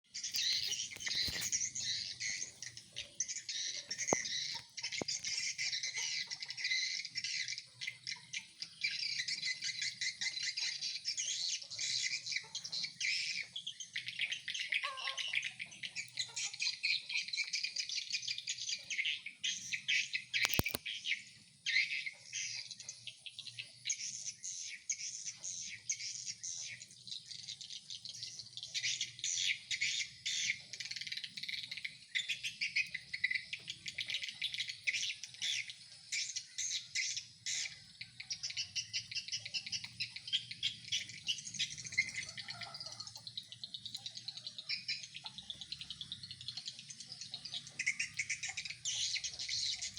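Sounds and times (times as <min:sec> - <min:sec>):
sharp click: 0:20.4 - 0:20.8.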